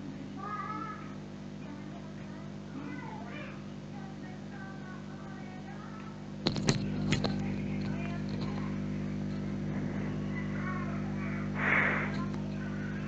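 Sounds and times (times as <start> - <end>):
faint background voices: 0.0 - 13.0
low electrical hum: 0.0 - 13.0
short soft hiss: 11.6 - 12.3.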